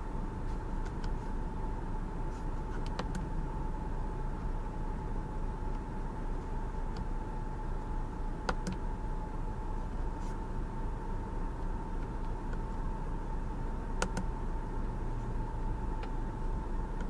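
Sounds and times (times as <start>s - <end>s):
steering wheel button clicks: 2.8s - 3.3s, 8.4s - 8.8s, 14.0s - 14.3s.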